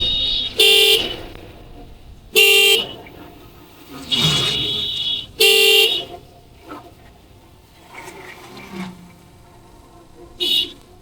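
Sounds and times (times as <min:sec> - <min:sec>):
longer horn of different pitch: 0:00.0 - 0:01.2, 0:04.5 - 0:06.2, 0:10.4 - 0:10.8
short car horn toots: 0:00.0 - 0:01.3, 0:04.5 - 0:06.2, 0:10.4 - 0:10.8.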